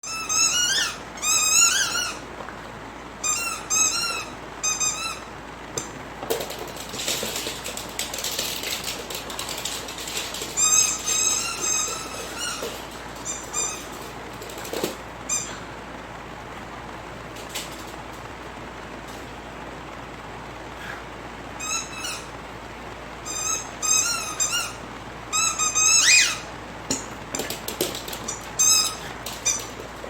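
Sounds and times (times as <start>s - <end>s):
squeaky dog toy squeaking: 0.0s - 2.2s, 3.2s - 5.3s, 10.6s - 14.0s, 23.3s - 26.5s, 28.3s - 29.7s
scratchy rustling and clicking: 6.2s - 15.1s.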